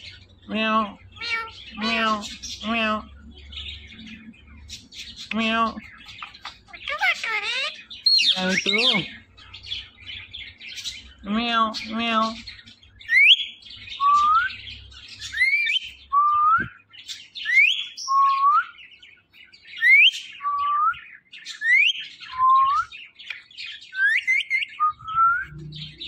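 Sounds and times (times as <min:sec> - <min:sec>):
parrot chattering: 0:00.5 - 0:03.1, 0:05.2 - 0:09.2.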